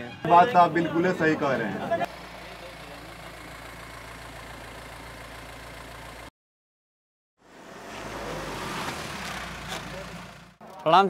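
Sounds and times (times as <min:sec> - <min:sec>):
engine idling: 0:00.4 - 0:06.3, 0:09.0 - 0:11.0.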